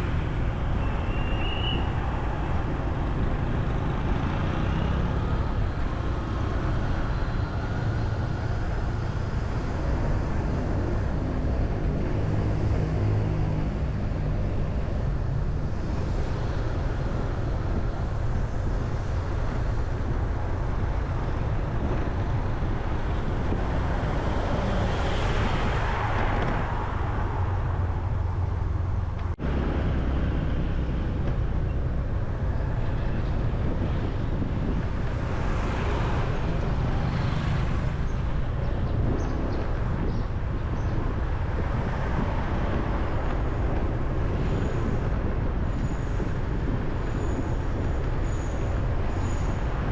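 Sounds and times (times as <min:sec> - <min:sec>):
road traffic rumble: 0:00.0 - 0:49.9
vehicles passing: 0:00.0 - 0:49.9.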